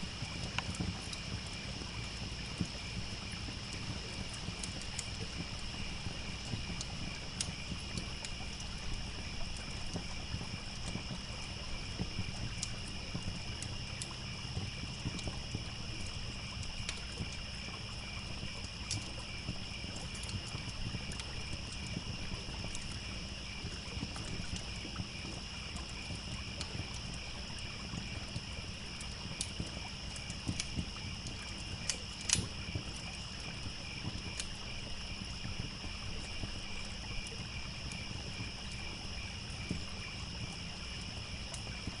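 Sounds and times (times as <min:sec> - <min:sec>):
campfire crackling and popping: 0:00.0 - 0:42.0
crickets chirping: 0:00.0 - 0:42.0
trickling stream: 0:00.0 - 0:42.0.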